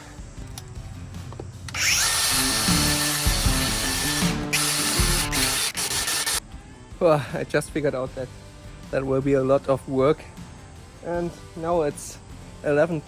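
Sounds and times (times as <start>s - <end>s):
wire brush grinding rust off metal: 1.4s - 6.4s.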